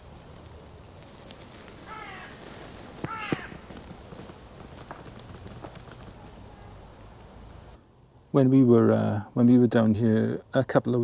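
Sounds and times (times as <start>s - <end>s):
faint clicks: 0.3s - 6.4s
short animal calls: 1.6s - 4.0s.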